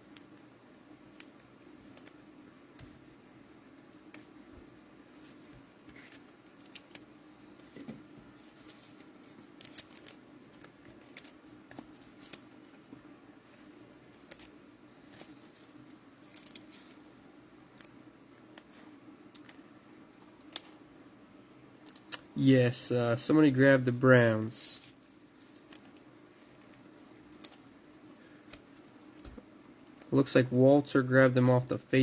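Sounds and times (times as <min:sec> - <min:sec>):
steady low hum: 0:00.0 - 0:32.0
cards and plastic packaging rustling: 0:05.0 - 0:20.8, 0:23.8 - 0:27.7.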